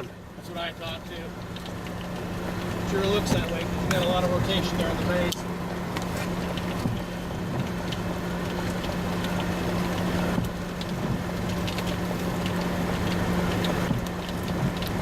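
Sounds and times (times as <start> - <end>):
raindrops ticking on surfaces: 0.0 - 15.0
vehicle engine idling: 0.0 - 15.0.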